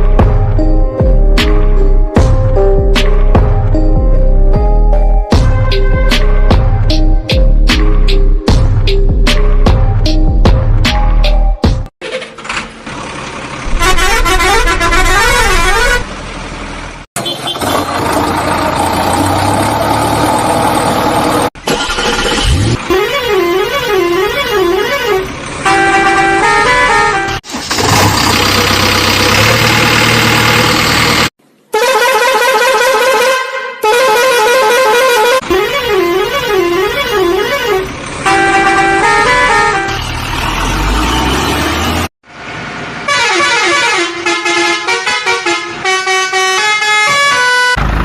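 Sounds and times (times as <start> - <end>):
vehicle running noise: 0.0 - 31.7, 34.8 - 48.0
warbling horn-like tone: 13.7 - 16.1.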